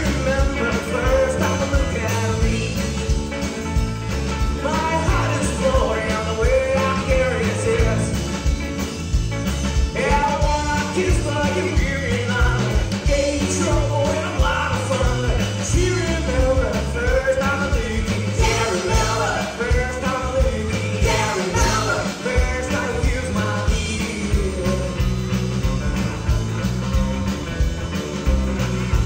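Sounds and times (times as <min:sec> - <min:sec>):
person singing: 0:00.0 - 0:03.2, 0:04.5 - 0:08.3, 0:09.9 - 0:25.2
bass guitar: 0:00.0 - 0:29.0
drums: 0:00.0 - 0:29.0.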